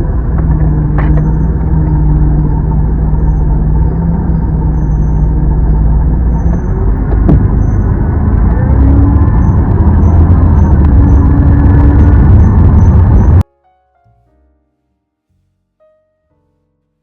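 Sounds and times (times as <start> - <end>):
road rumble: 0.0 - 13.4
vehicle engine running: 0.0 - 13.4.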